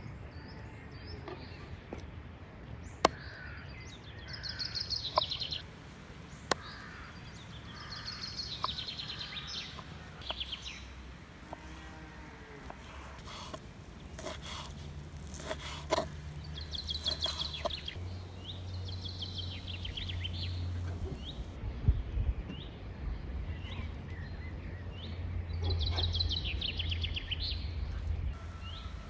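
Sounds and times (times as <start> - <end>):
birds singing: 2.9 - 21.6, 28.4 - 29.0.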